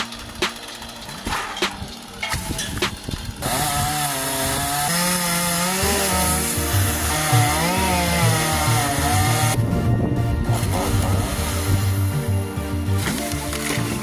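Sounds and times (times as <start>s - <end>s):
chainsaw cutting branch: 0.0s - 9.6s, 10.5s - 14.0s
background music with bass line: 0.0s - 14.0s.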